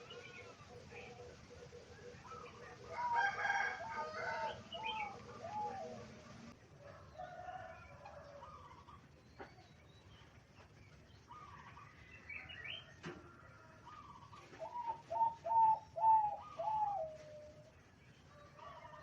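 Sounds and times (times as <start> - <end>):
dove cooing: 0.0 - 6.5, 13.8 - 17.7
faint bird calls: 11.2 - 17.7.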